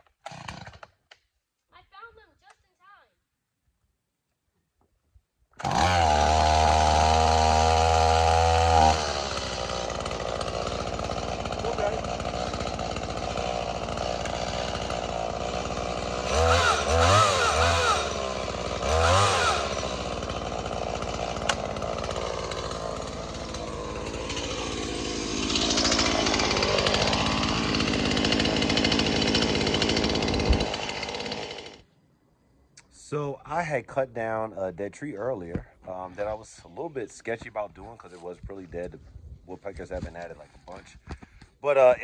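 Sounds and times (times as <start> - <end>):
chainsaw revving: 0.2 - 1.0, 5.6 - 31.9.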